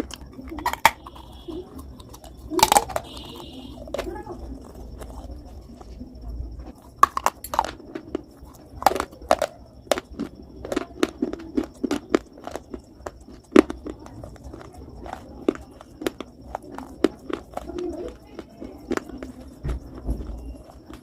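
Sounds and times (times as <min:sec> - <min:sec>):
person crunching brittle food: 0:00.0 - 0:21.0.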